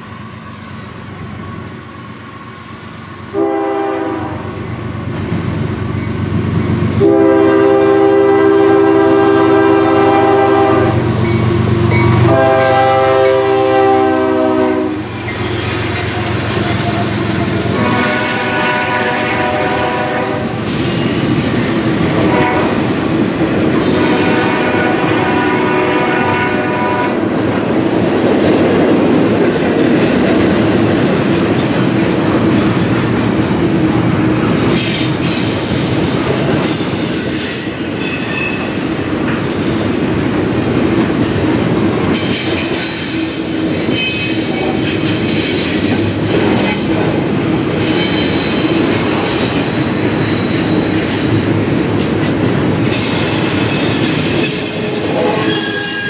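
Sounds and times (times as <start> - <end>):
train wheels rumbling on rail: 0.0 - 56.0
high-pitched wheel squeals: 36.6 - 40.6, 42.9 - 44.4, 52.9 - 56.0.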